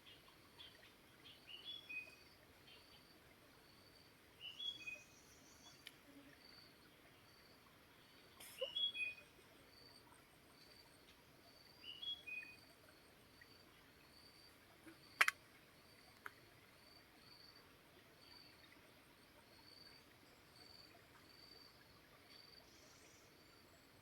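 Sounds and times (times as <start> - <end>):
stream hiss: 0.0 - 24.0
songbirds singing: 8.4 - 9.3, 11.8 - 12.6
sharp click: 15.2 - 15.4.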